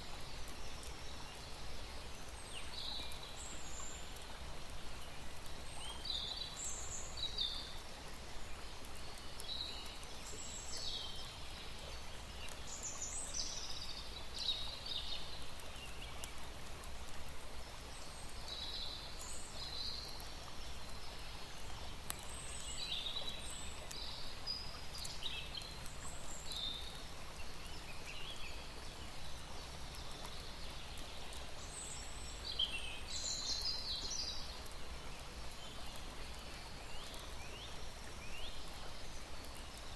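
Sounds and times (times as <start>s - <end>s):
small birds chirping: 17.6s - 39.9s.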